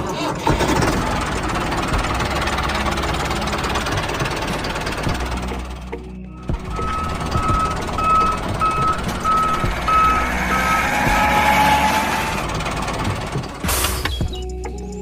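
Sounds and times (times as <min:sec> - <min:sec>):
low rumble: 0:00.5 - 0:13.6
vehicle reversing alarm beeping: 0:05.9 - 0:12.4.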